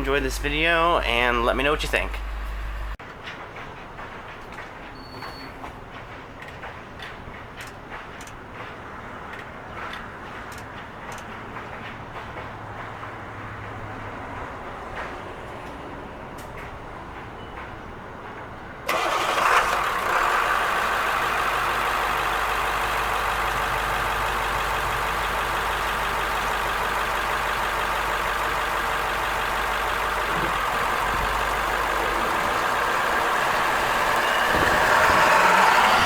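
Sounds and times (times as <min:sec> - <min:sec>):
diesel bus engine running: 0:00.0 - 0:03.0, 0:18.8 - 0:36.0.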